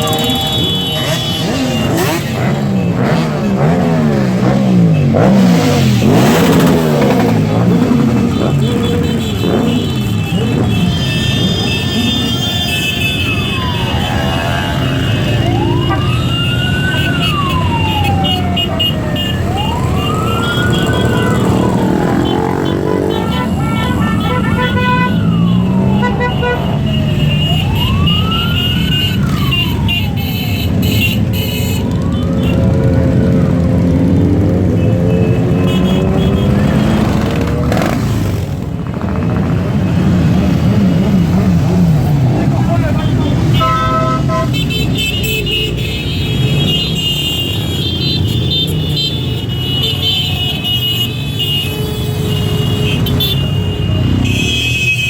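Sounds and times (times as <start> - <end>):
short high beeps: 0.0 - 2.2
high steady tones: 0.0 - 2.6
siren wailing: 0.0 - 4.0, 11.6 - 37.5
motorcycle engines running: 0.0 - 50.9.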